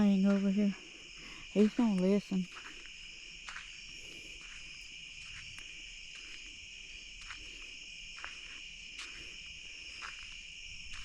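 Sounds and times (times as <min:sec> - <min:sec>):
crickets and insects droning: 0:00.0 - 0:11.0.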